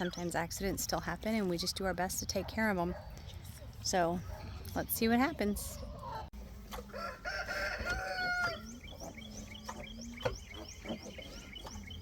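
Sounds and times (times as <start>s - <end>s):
rooster crowing: 6.9s - 8.7s.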